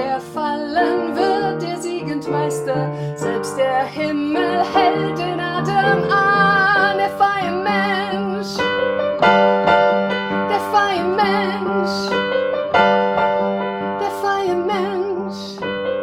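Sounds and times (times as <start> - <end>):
woman singing with vibrato: 0.0 - 8.8, 10.4 - 12.2, 14.0 - 15.6
slow piano accompaniment: 0.0 - 16.0.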